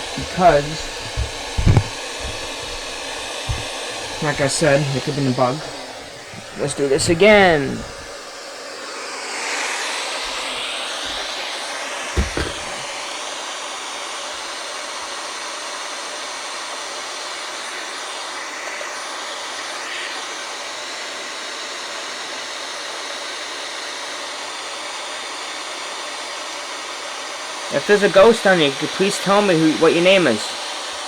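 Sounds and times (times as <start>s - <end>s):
low thump: 0.0s - 4.8s, 12.2s - 12.9s
radio static hissing: 0.0s - 8.4s.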